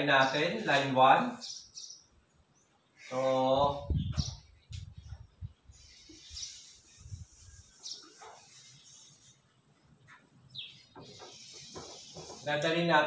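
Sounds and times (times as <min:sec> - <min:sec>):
birds chirping: 0:00.0 - 0:13.0
eraser rubbing on chalkboard: 0:05.8 - 0:09.4, 0:11.0 - 0:12.8.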